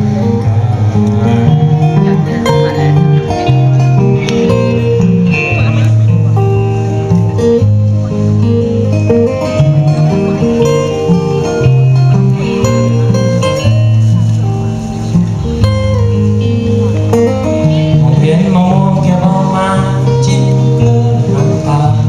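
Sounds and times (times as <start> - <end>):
strummed acoustic guitar: 0.0 - 22.0
person singing: 17.6 - 22.0.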